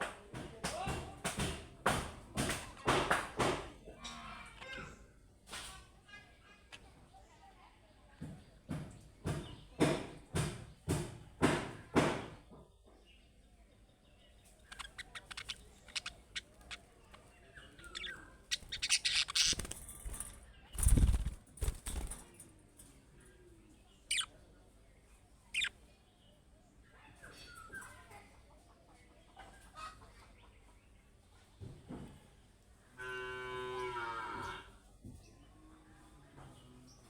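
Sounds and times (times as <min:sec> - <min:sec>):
budgerigars chirping: 0:14.5 - 0:20.2, 0:24.1 - 0:24.4, 0:25.5 - 0:25.8.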